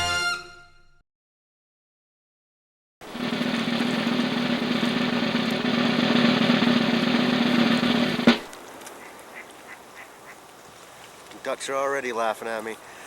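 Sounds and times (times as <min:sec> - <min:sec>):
sharp drum hit: 0:03.0 - 0:08.5
drum roll: 0:03.0 - 0:08.6.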